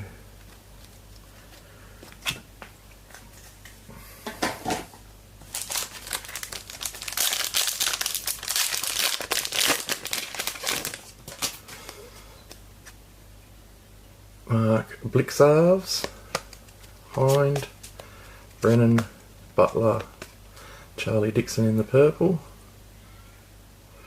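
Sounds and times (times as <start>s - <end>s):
foil pack crinkling and tearing: 5.4s - 12.0s.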